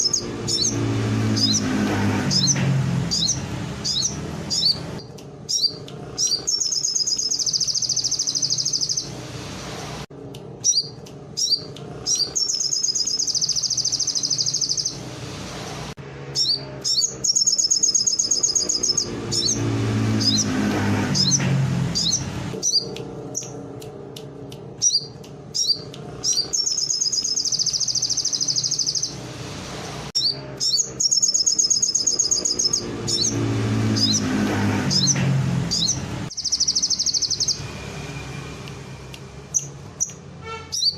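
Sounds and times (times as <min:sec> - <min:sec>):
songbird chirping and trilling: 0:00.0 - 0:09.2, 0:10.6 - 0:15.1, 0:16.3 - 0:29.2, 0:30.2 - 0:38.3, 0:39.5 - 0:40.9.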